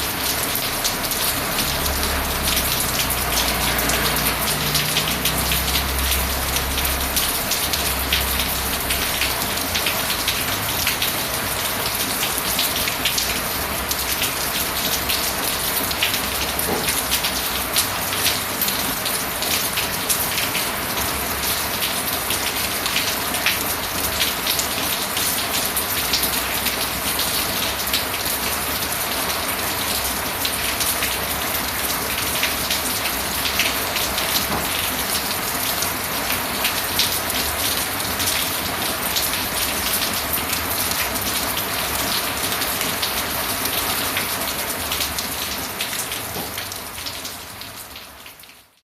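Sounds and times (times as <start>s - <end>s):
steady rain falling: 0.0s - 48.8s.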